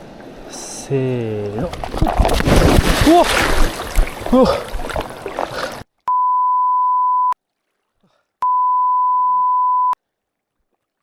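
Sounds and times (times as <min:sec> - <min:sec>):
electronic beep tone: 0:06.1 - 0:07.4, 0:08.4 - 0:10.0.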